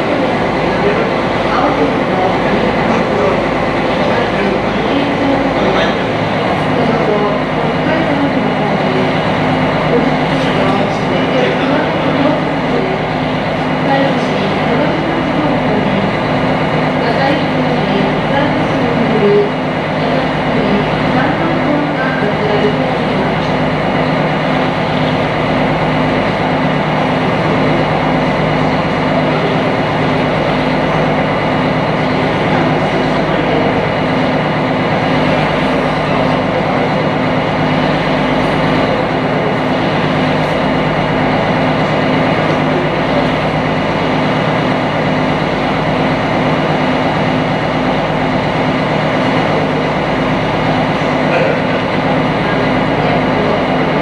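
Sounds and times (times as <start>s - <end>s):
boat engine humming: 0.0s - 54.0s.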